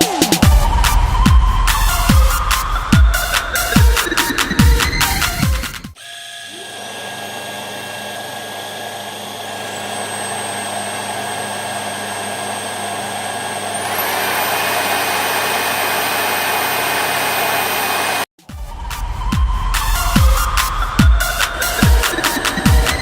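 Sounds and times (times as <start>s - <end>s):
vacuum motor whining: 6.0s - 18.3s.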